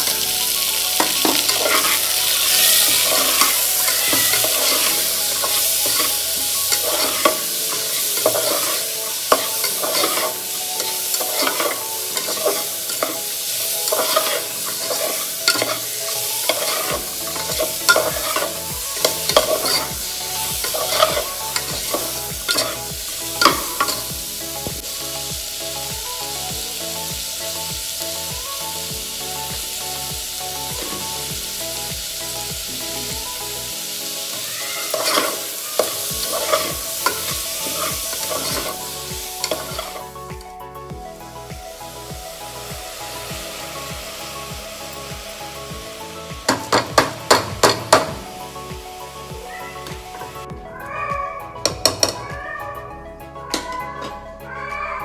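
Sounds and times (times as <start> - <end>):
vegetables sizzling in a pan: 0.0 - 40.2, 41.2 - 50.5
steel spatula scraping metal: 1.0 - 24.1, 34.9 - 38.8.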